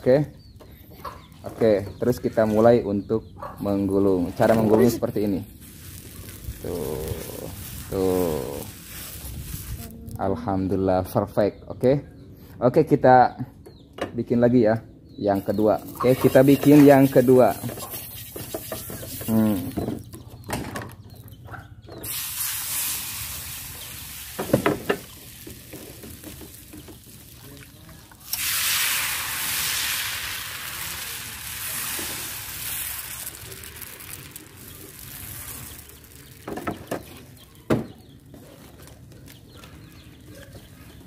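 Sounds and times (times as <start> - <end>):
food sizzling in a pan: 5.6 - 9.9, 22.0 - 36.4.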